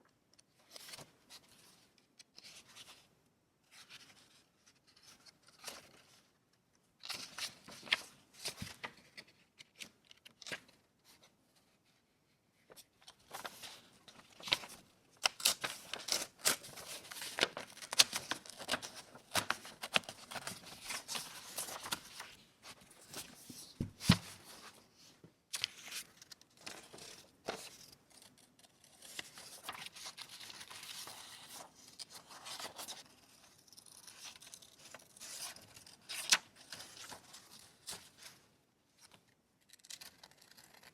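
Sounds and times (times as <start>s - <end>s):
paper tearing and rustling: 14.4s - 22.2s.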